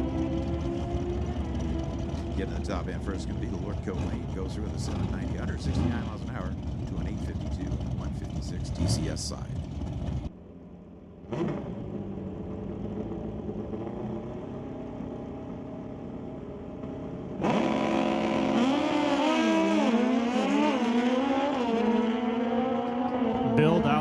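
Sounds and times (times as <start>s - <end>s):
motorcycle engines revving: 0.0s - 10.3s, 11.2s - 15.7s, 17.3s - 24.0s.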